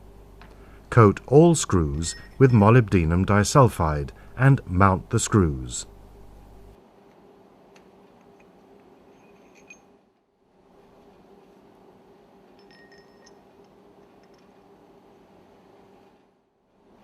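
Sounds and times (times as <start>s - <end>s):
low workshop hum: 0.0s - 17.0s
light metallic clinks: 9.1s - 10.0s, 12.5s - 14.7s.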